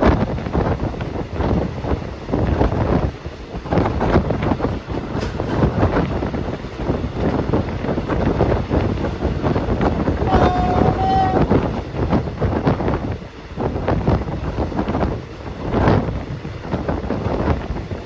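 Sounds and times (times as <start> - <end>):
train carriage rattling: 0.0 - 18.0
wind rushing on microphone: 0.0 - 18.0
train horn: 10.1 - 11.6.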